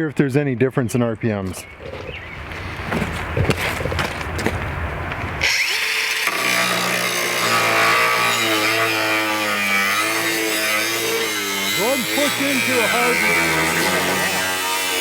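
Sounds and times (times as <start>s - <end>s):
angle grinder cutting: 5.4s - 15.0s.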